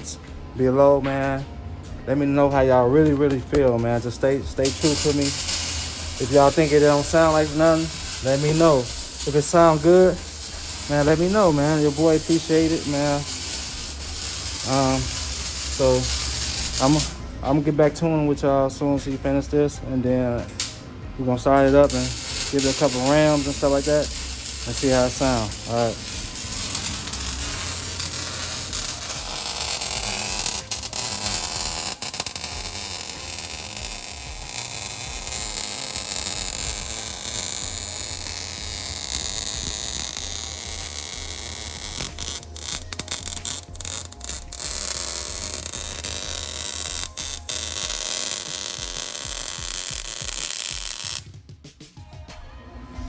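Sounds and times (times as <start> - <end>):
welding hiss and crackle: 3.0 - 17.9, 20.4 - 51.3.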